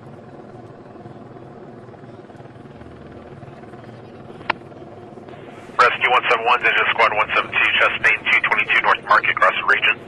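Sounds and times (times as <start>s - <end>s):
mechanical drone over radio: 2.0s - 10.0s.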